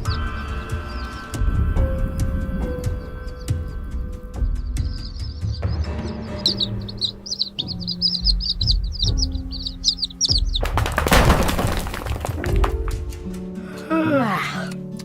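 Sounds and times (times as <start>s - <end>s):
bird chirping: 0.0s - 11.1s
background music with low beat: 0.0s - 11.4s.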